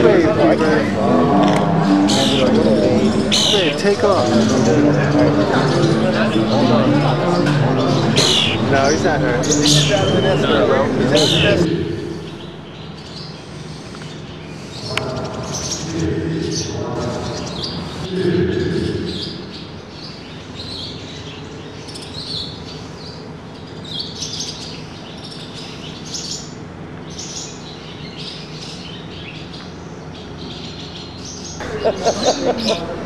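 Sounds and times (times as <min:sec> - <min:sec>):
low murmur: 0:00.0 - 0:12.7, 0:14.8 - 0:19.9, 0:31.6 - 0:33.0
small birds chirping: 0:00.0 - 0:32.8.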